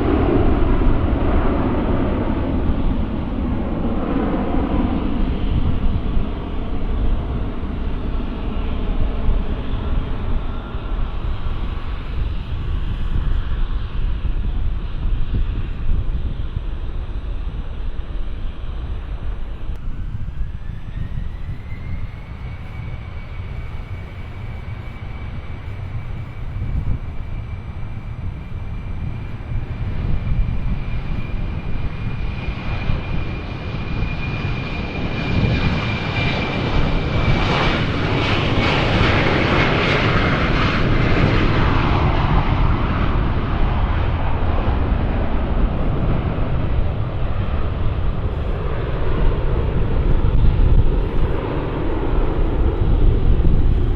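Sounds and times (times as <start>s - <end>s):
deep rumble: 0.0s - 53.9s
jet engine roar: 0.0s - 53.9s
jet turbine whine: 0.0s - 53.9s.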